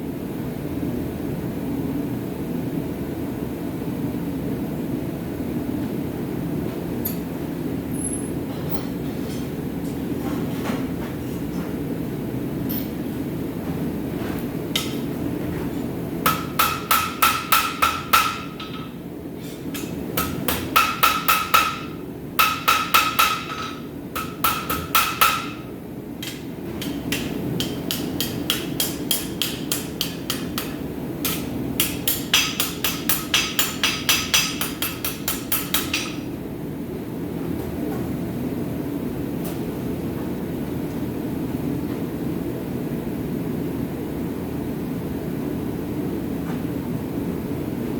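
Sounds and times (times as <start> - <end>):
hammer striking steel on anvil: 16.3 - 18.9, 19.8 - 25.6, 26.2 - 36.2.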